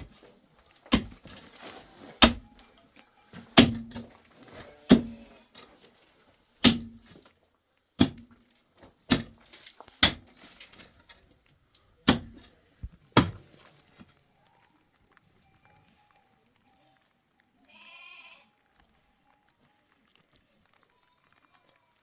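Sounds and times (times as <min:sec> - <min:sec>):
sharp ringing knocks: 0:02.2 - 0:04.2.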